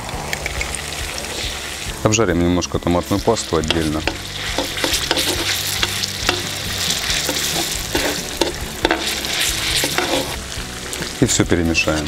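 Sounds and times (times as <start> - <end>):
oil sizzling with vegetables: 0.0 - 12.0
metal spatula scraping a pot: 3.6 - 11.1.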